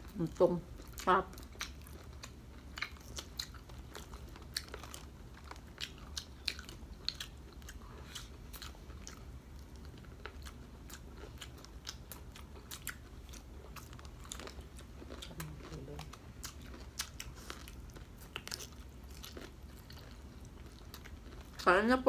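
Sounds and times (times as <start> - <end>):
crunchy chewing: 0.0 - 21.7
steady low hum: 0.0 - 22.0.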